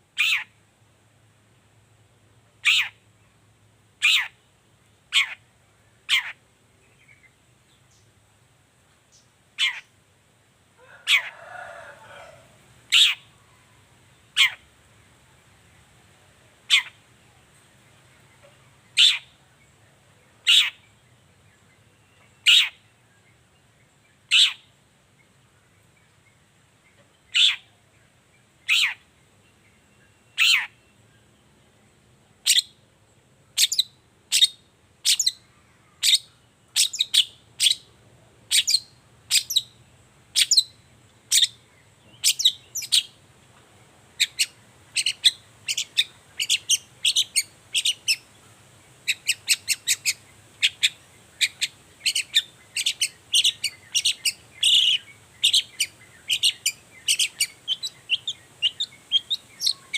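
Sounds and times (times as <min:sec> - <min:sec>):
bird's sharp downward-sweeping calls: 0:02.6 - 0:03.0, 0:04.0 - 0:04.4, 0:19.0 - 0:19.4, 0:20.4 - 0:20.8, 0:22.4 - 0:22.8, 0:24.3 - 0:24.7, 0:27.3 - 0:27.7, 0:28.6 - 0:29.0, 0:30.3 - 0:30.8, 0:38.5 - 0:43.2, 0:44.2 - 0:48.3, 0:49.0 - 0:59.9.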